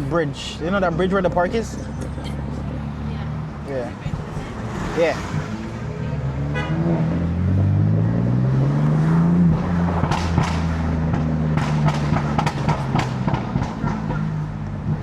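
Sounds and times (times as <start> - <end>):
car engine accelerating: 0.0 - 15.0
exhaust pops and crackles: 9.5 - 15.0.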